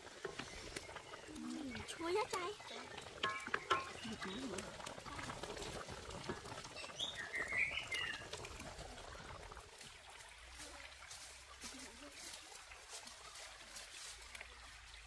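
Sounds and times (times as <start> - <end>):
simmering pot bubbling: 0.0 - 15.0
bird chirping: 6.8 - 8.3.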